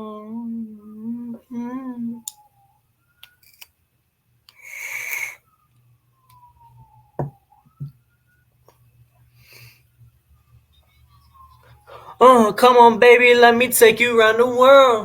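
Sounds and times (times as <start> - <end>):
close breathing and sniffs: 4.5 - 5.4
faint falling whistle tones: 4.6 - 9.8, 10.7 - 12.2.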